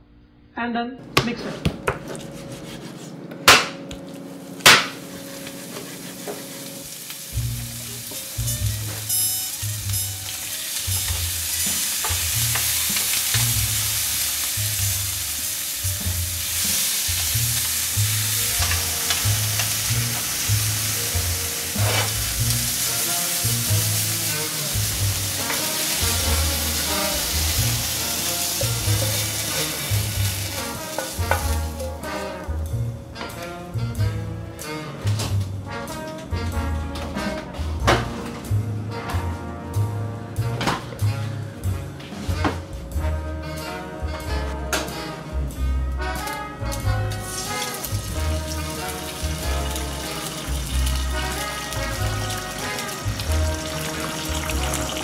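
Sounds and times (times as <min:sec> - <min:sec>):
chicken sizzling in frying pan: 0:04.7 - 0:32.1, 0:47.1 - 0:55.0.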